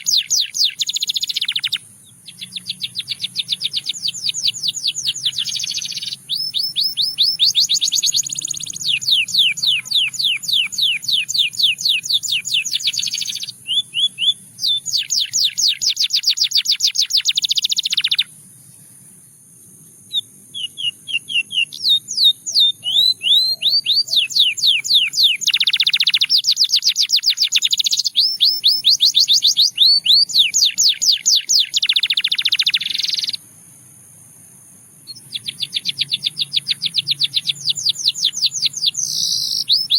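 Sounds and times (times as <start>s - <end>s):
canary singing trills: 0.0s - 19.2s, 20.0s - 33.5s, 35.0s - 39.9s.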